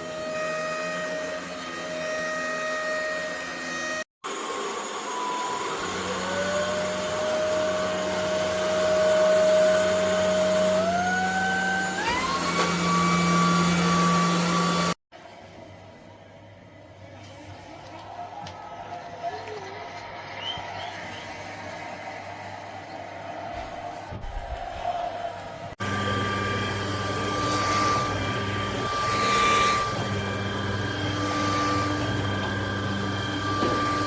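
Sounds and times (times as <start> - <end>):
stick vacuum motor whining: 0.0 - 15.0, 23.6 - 34.0.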